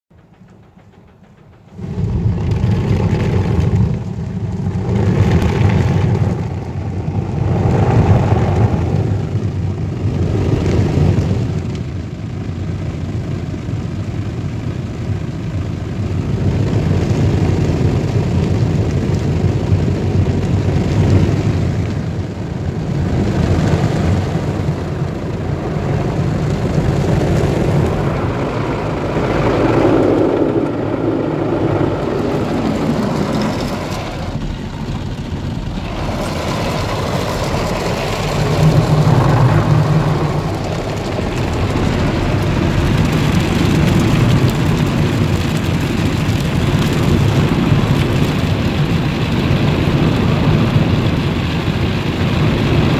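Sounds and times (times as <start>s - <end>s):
car wash rumble: 0.1s - 52.9s.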